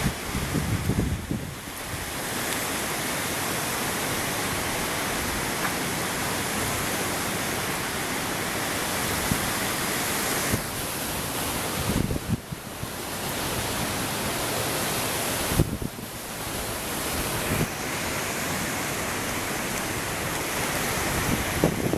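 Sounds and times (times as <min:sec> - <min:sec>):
strong wind rushing: 0:00.0 - 0:02.1, 0:11.6 - 0:12.9, 0:15.4 - 0:17.9, 0:20.0 - 0:21.9
wind buffeting microphone: 0:00.0 - 0:02.3, 0:11.5 - 0:13.8, 0:15.4 - 0:18.5, 0:19.1 - 0:21.9.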